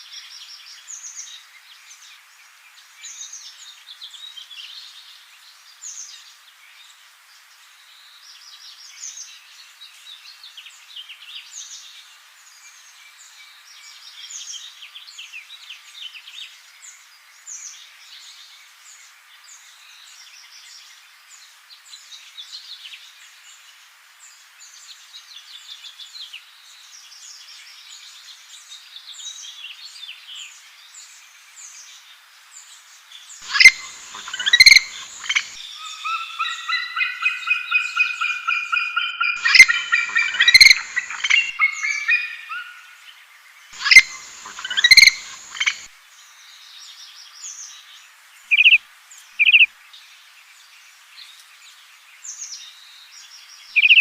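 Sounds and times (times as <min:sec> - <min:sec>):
high bird chirps: 0:33.4 - 0:42.7, 0:43.8 - 0:45.9, 0:48.5 - 0:48.8, 0:49.4 - 0:49.7, 0:53.8 - 0:54.0
rapid whistled bird notes: 0:33.4 - 0:42.7, 0:43.8 - 0:45.9, 0:48.5 - 0:48.8, 0:49.4 - 0:49.7, 0:53.8 - 0:54.0
loud bird calls: 0:33.4 - 0:43.1, 0:43.8 - 0:45.9, 0:48.5 - 0:48.8, 0:49.4 - 0:49.7, 0:53.8 - 0:54.0.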